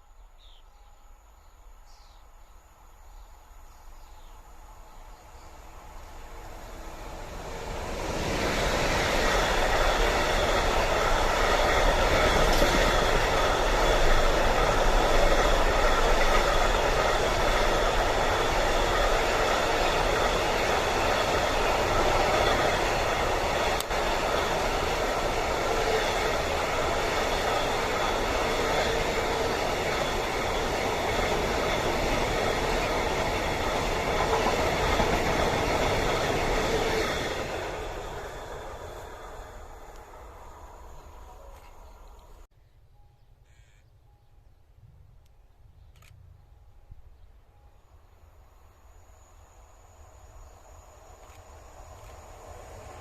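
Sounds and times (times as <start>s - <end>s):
train wheels rumbling on rails: 4.9s - 42.5s, 49.8s - 53.0s.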